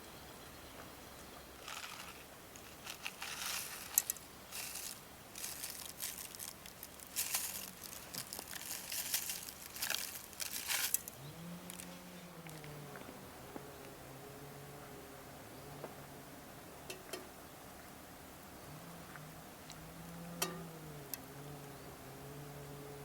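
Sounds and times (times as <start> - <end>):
packaging rustling and crinkling: 1.6 - 11.9.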